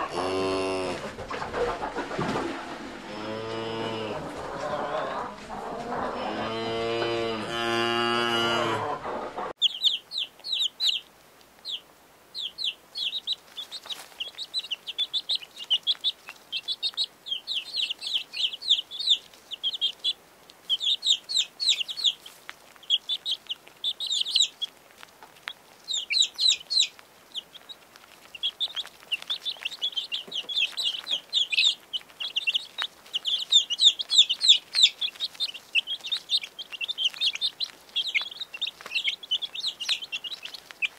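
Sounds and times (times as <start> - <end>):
cow mooing: 0.0 - 1.0, 3.0 - 5.2, 6.0 - 9.0
quail chicks peeping: 0.0 - 7.5, 8.5 - 40.9.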